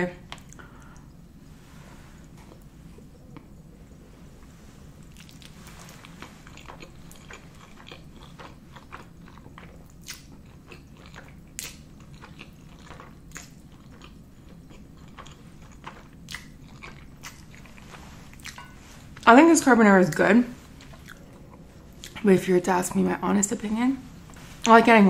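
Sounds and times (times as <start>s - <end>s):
person chewing wet mouth sounds: 5.1s - 18.6s, 20.8s - 22.2s.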